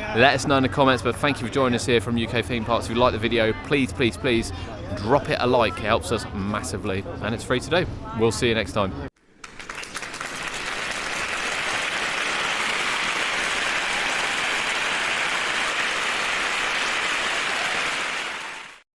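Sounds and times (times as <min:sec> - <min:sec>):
applause: 0:09.2 - 0:18.8.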